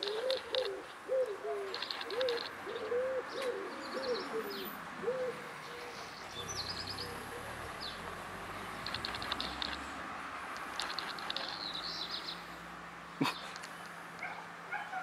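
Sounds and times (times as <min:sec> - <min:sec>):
low cooing bird notes: 0:00.0 - 0:10.1.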